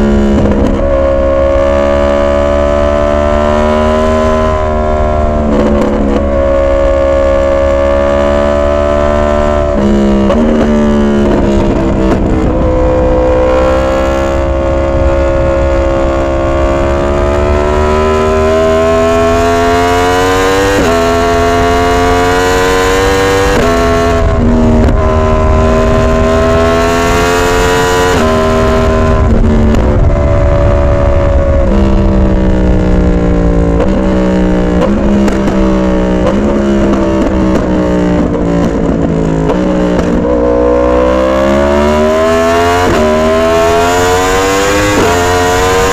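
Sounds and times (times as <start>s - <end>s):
motorcycle engine revving: 0.0s - 45.9s
low rumble: 9.6s - 19.4s, 23.8s - 27.1s, 28.2s - 39.4s.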